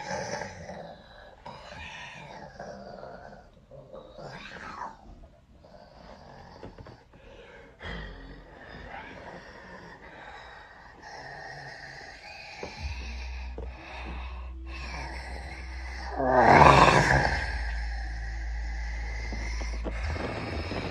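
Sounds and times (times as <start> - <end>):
person snorting and gasping: 7.7 - 20.9
low steady rumble: 10.1 - 20.9.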